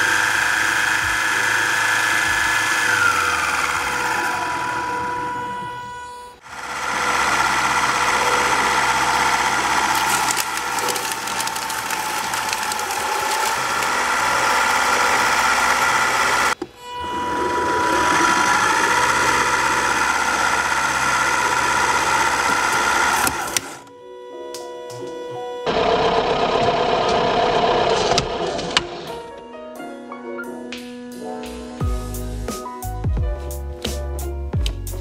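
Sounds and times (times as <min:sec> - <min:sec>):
shredder motor whining: 0:00.0 - 0:29.3
crackling and snapping material: 0:08.6 - 0:16.6.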